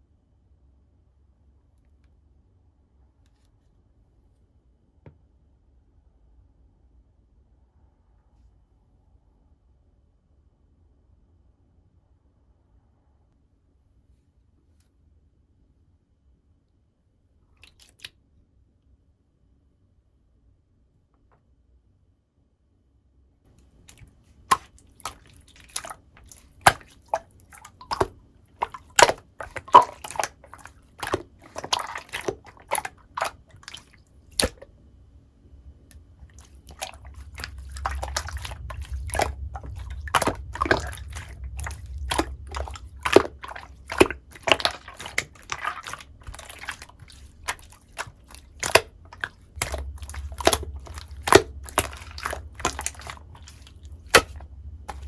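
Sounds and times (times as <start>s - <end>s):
slime squished by hand: 17.6s - 18.1s, 23.6s - 34.7s, 36.2s - 55.0s
low rumble: 35.4s - 45.4s.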